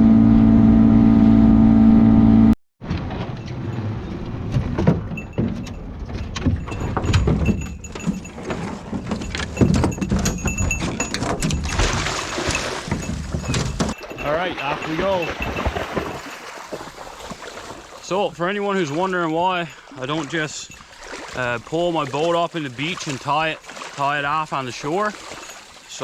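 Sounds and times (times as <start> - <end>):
boat motor droning: 0.0 - 2.5, 3.2 - 19.2.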